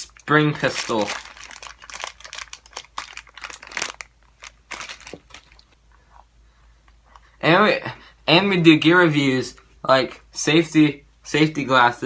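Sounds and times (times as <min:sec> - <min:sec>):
plastic crinkling: 0:00.0 - 0:05.8.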